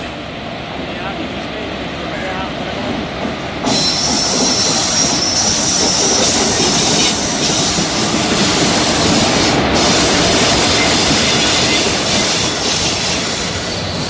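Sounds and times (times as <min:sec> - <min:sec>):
train wheels rumbling on rails: 0:00.0 - 0:14.0
high squeal: 0:03.6 - 0:14.0.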